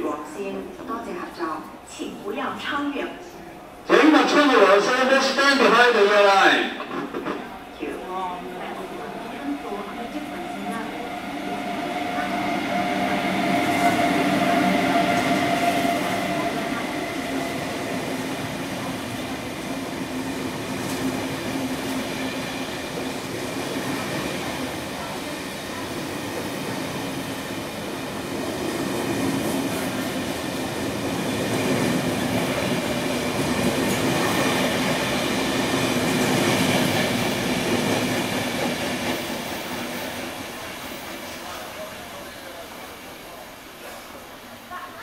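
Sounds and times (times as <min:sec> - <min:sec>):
train wheels on rails: 0:05.2 - 0:44.7.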